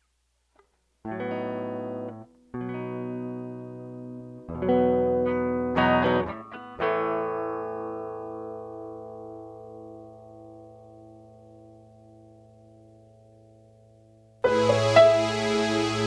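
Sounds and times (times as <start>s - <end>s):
guitar ringing chords: 1.1s - 16.0s.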